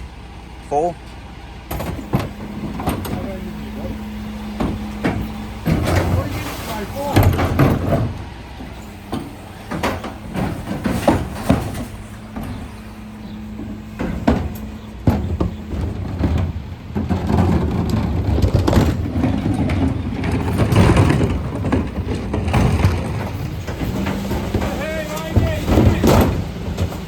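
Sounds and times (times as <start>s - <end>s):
rushing mechanical noise: 0.0s - 27.0s
truck engine humming: 0.0s - 27.0s
metallic knocks and bangs of bins: 1.6s - 27.0s.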